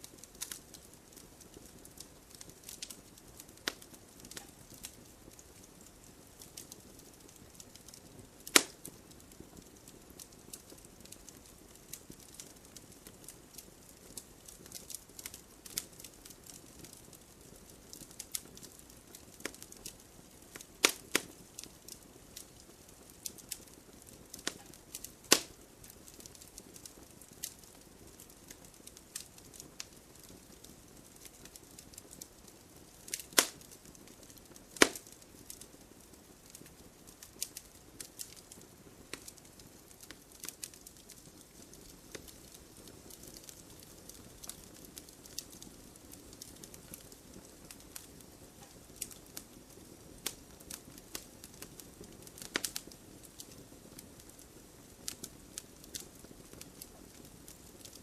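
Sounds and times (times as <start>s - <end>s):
campfire crackling: 0.0s - 58.0s
loud fire pops: 0.3s - 5.5s, 6.4s - 13.6s, 17.8s - 22.6s, 23.2s - 35.6s, 50.2s - 54.3s.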